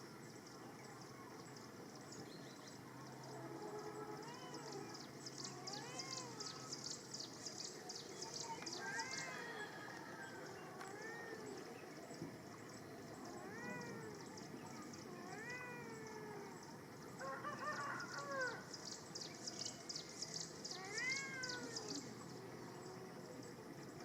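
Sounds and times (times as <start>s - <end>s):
kittens meowing: 5.5s - 6.6s, 13.3s - 14.2s, 15.1s - 16.5s, 20.7s - 22.1s.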